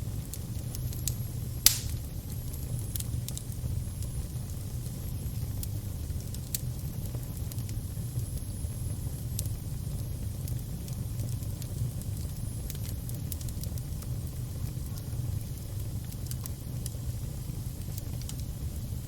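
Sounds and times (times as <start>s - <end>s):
fire crackling: 0.0s - 19.0s
sharp pops: 1.6s - 2.0s.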